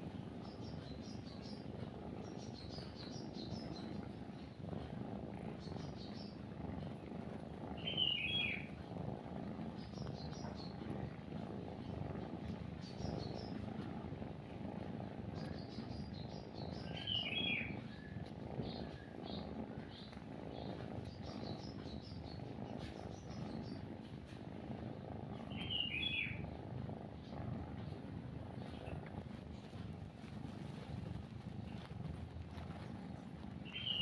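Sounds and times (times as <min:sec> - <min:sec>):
cat purring: 0:00.0 - 0:34.0
small birds chirping: 0:00.0 - 0:34.0
loud bird calls: 0:07.8 - 0:08.7, 0:15.5 - 0:18.0, 0:25.5 - 0:26.4, 0:33.6 - 0:34.0.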